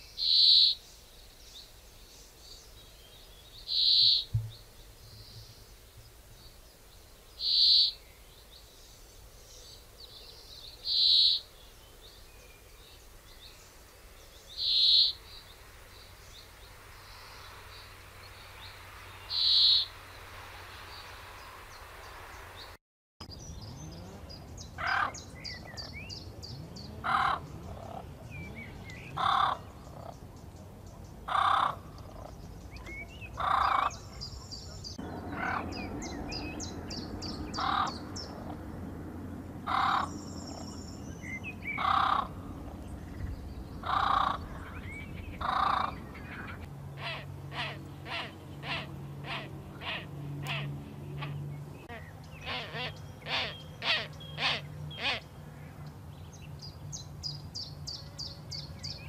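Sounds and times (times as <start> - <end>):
small birds twittering: 0.0 - 59.0
bird cawing: 19.3 - 19.9, 27.0 - 28.0, 29.2 - 30.2, 31.3 - 32.2, 33.4 - 34.0, 35.1 - 36.2, 37.2 - 38.6, 39.6 - 40.2, 41.7 - 42.6, 43.8 - 55.8.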